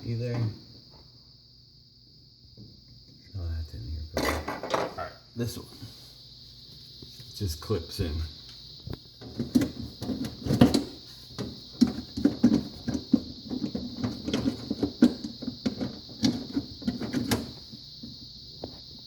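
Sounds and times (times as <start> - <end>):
plastic panels clicking and knocking: 9.2 - 17.7.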